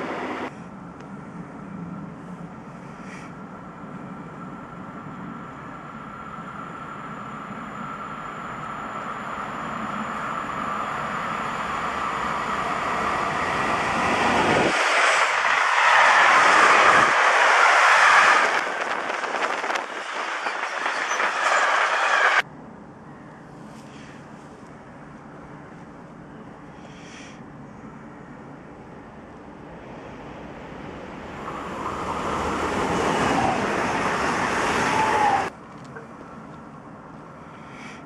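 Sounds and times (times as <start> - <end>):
electric locomotive rushing past: 3.5 - 22.4, 29.5 - 35.5.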